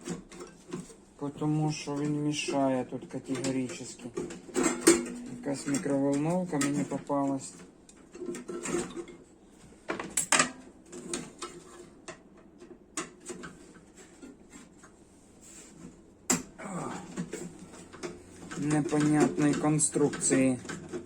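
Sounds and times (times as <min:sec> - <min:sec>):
tool clicks and metal knocks: 0:17.9 - 0:21.0.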